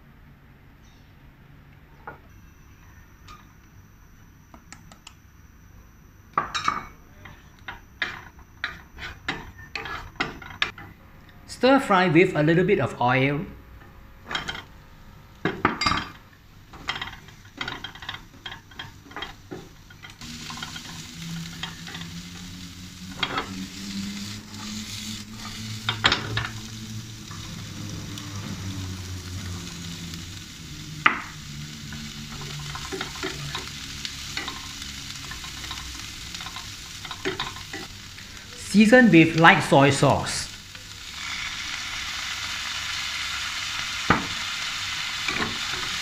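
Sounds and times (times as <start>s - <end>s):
stir-frying sizzle: 15.4s - 46.0s
vegetables clattering into pan: 15.5s - 22.5s, 30.8s - 37.9s.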